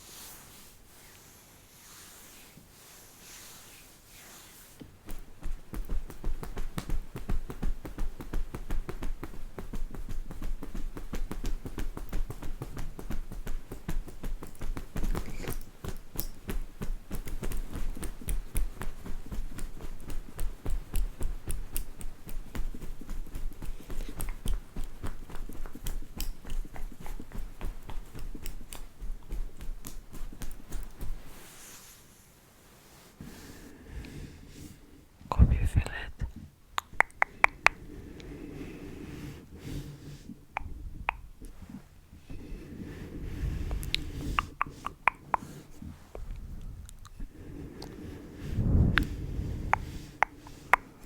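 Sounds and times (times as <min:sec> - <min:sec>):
rapid tapping and clicking: 0:05.0 - 0:31.3
low thuds: 0:48.5 - 0:50.0.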